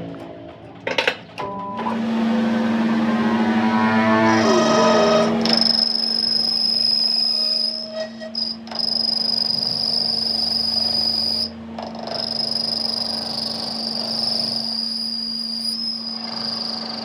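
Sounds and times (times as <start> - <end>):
constant low hum: 0.0 - 6.3
high-pitched insect trill: 4.4 - 17.0.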